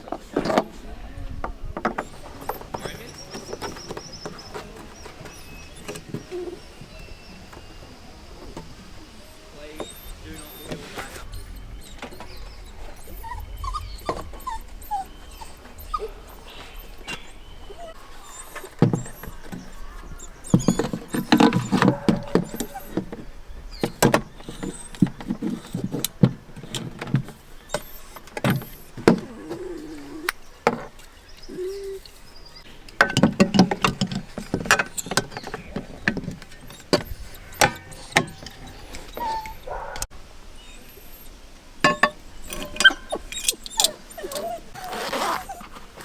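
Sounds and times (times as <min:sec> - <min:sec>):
short pitched squeaks: 0:02.0 - 0:08.0, 0:09.0 - 0:26.1, 0:34.8 - 0:40.0, 0:42.0 - 0:46.0
knocks clicks and clatter: 0:18.5 - 0:29.3, 0:32.7 - 0:40.1.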